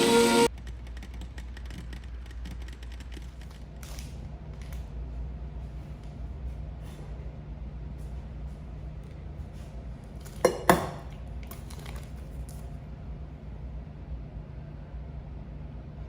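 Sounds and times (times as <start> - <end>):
music: 0.0 - 0.5.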